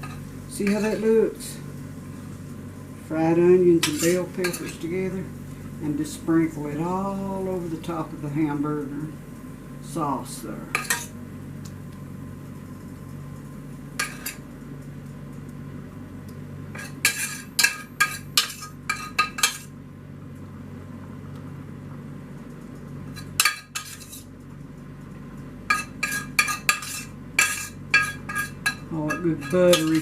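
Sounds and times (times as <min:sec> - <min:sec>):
steady low hum: 0:00.0 - 0:30.0
metal spoon clinking on pans: 0:16.8 - 0:19.7, 0:23.1 - 0:24.2, 0:25.7 - 0:30.0.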